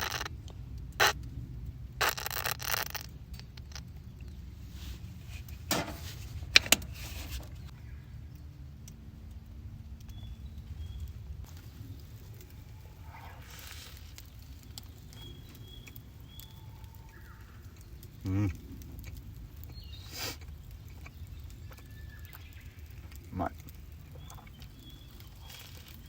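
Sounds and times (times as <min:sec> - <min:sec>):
steady low rumble: 0:03.1 - 0:26.0
handling scrapes and rustles: 0:04.5 - 0:07.7, 0:11.5 - 0:15.5.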